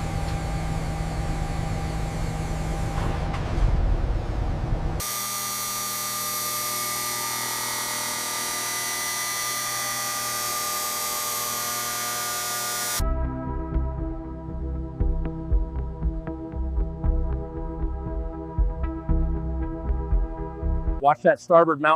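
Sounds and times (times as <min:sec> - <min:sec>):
power drill whining: 0:05.0 - 0:13.0.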